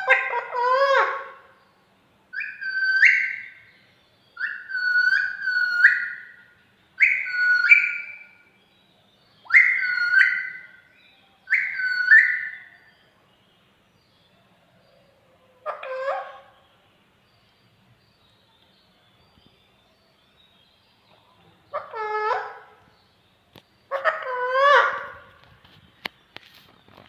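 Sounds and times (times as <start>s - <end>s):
parrot whistling: 4.4s - 6.3s, 7.0s - 8.3s, 9.5s - 10.7s, 11.5s - 12.6s.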